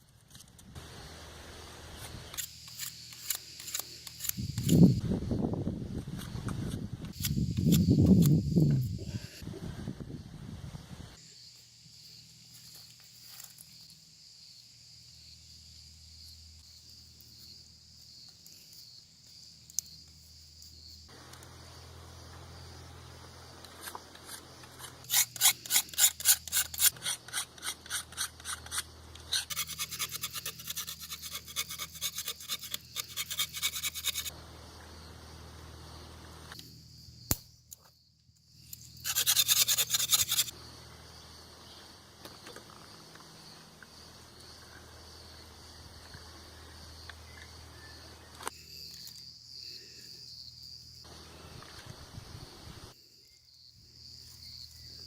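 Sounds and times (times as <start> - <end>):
insect chorus: 0.8 - 55.0
flint rod scraped with striker: 2.3 - 5.0, 7.0 - 8.4, 23.8 - 34.3, 38.7 - 40.5.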